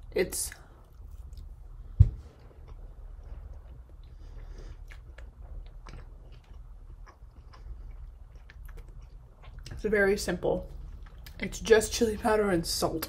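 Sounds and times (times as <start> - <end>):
low steady hum: 0.0 - 13.0
person chewing: 0.5 - 9.8, 10.7 - 11.4.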